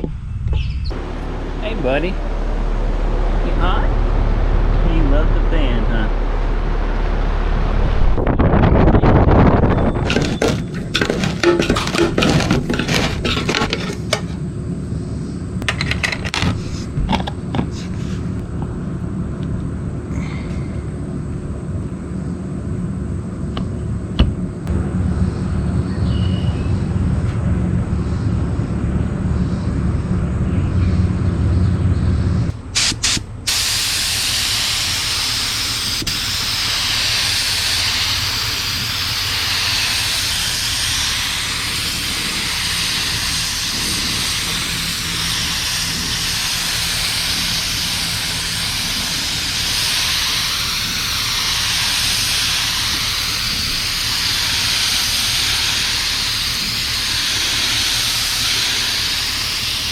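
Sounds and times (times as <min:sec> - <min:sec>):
low machine hum: 0:00.0 - 0:59.9
paint spray gun hissing: 0:10.1 - 0:14.3, 0:32.8 - 0:59.9.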